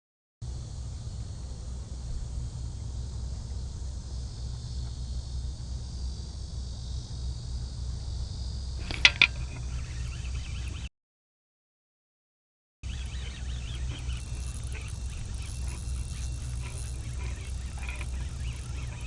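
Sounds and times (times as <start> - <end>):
sharp metallic clinks: 12.9 - 19.0.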